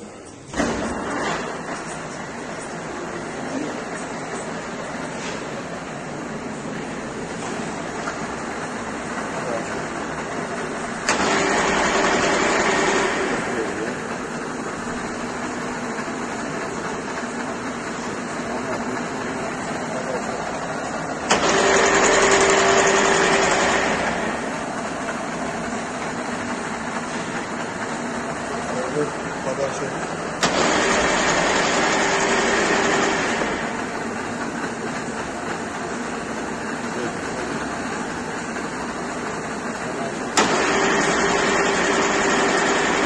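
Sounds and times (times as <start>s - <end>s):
lathe running: 0.0s - 43.0s
loud whir with steady whine: 0.0s - 43.0s
sharp clack: 40.3s - 43.0s.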